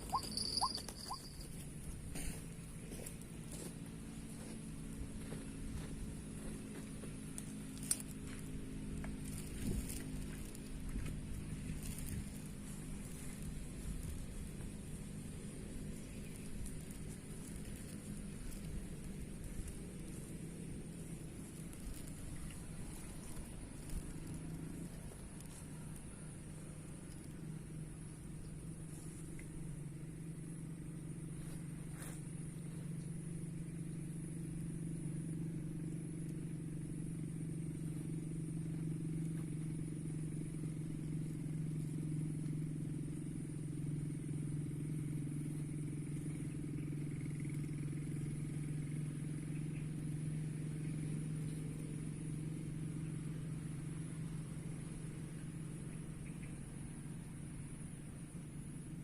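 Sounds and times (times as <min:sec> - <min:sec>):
thin high-pitched whine: 0:00.0 - 0:02.0
low engine-like hum: 0:00.0 - 0:59.0.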